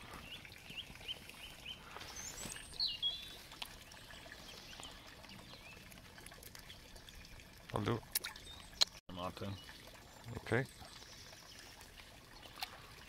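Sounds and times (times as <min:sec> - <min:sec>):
songbird singing: 0:00.2 - 0:05.9.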